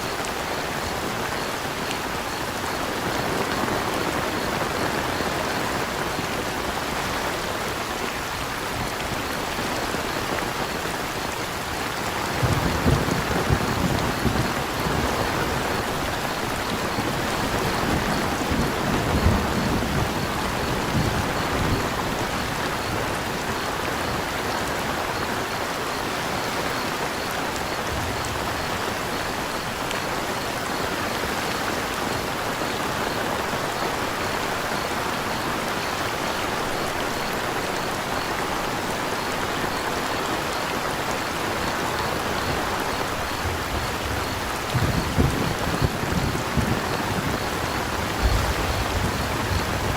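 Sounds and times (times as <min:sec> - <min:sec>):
crickets chirping: 0:00.0 - 0:49.9
rain falling: 0:00.0 - 0:49.9
thunder rumbling: 0:12.2 - 0:23.1, 0:42.5 - 0:49.9.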